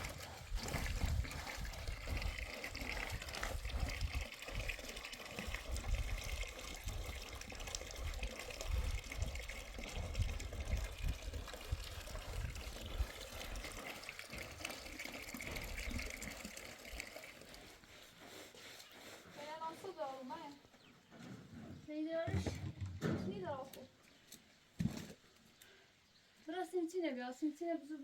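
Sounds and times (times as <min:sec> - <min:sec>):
water running: 0:00.0 - 0:18.4.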